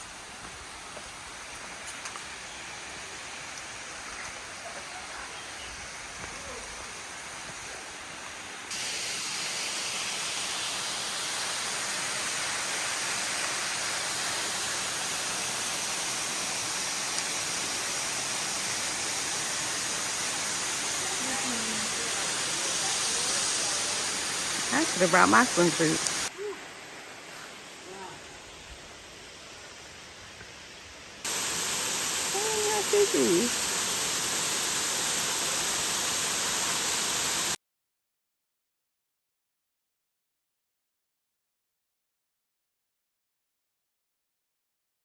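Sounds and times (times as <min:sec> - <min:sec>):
waterfall rushing: 0:01.6 - 0:27.1, 0:31.2 - 0:37.6.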